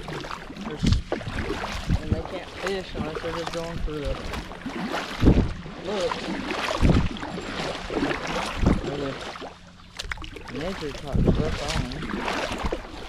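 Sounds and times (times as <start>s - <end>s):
wind buffeting microphone: 0.0s - 9.1s, 10.5s - 13.0s
kayak rustling on water: 0.0s - 13.0s.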